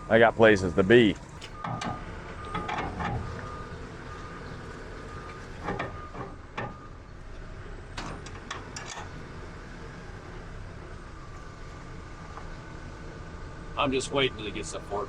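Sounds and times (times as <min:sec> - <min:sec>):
forklift engine running: 0:00.0 - 0:15.0
metallic clanks and rattles: 0:01.2 - 0:04.6, 0:05.3 - 0:09.3.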